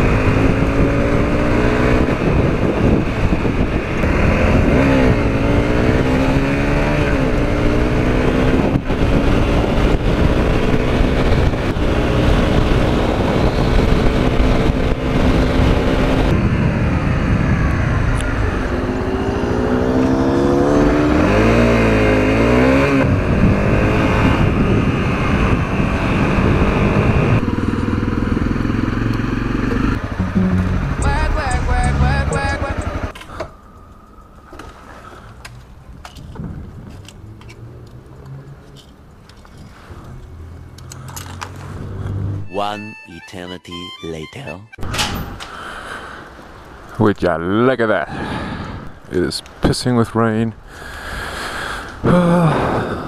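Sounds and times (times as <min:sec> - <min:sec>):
motorcycle engine accelerating: 0:00.0 - 0:33.1.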